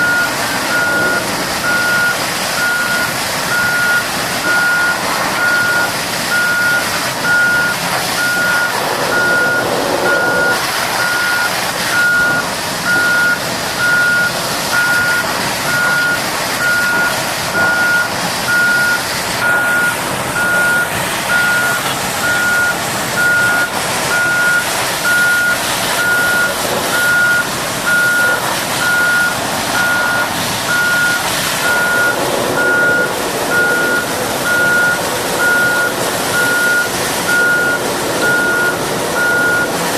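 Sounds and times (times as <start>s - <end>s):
noisy hiss: 0.0s - 39.9s
reversing alarm beeping: 0.0s - 39.9s.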